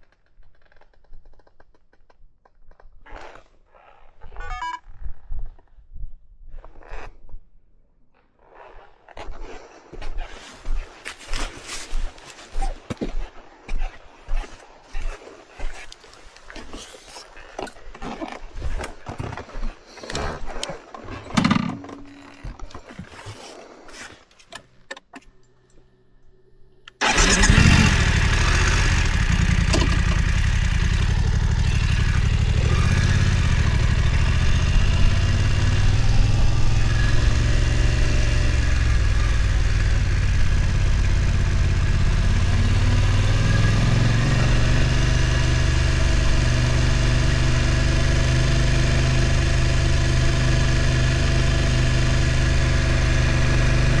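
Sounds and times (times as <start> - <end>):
motorcycle engine starting and idling: 26.9 - 54.0.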